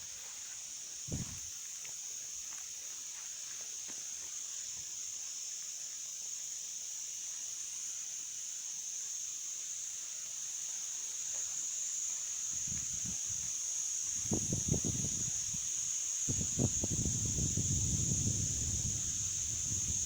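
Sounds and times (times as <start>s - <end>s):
high-pitched insect chorus: 0.0s - 20.0s
wind buffeting microphone: 1.1s - 1.4s, 14.2s - 15.7s, 16.3s - 20.0s.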